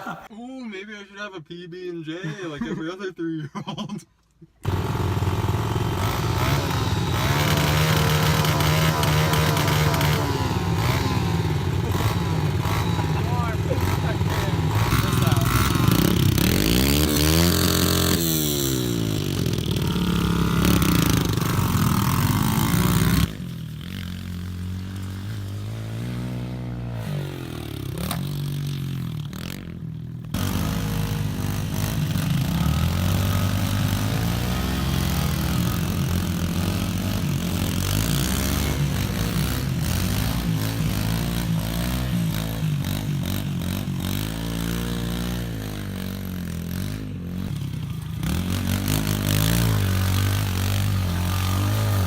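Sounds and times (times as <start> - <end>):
motorbike engines revving: 4.6 - 52.0.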